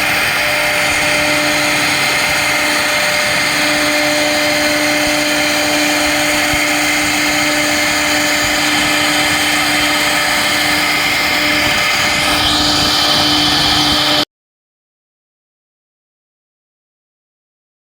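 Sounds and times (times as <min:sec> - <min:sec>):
higher spindle note: 0:00.0 - 0:14.2
router spindle tone: 0:00.0 - 0:14.2
loud cutting noise: 0:00.0 - 0:14.3.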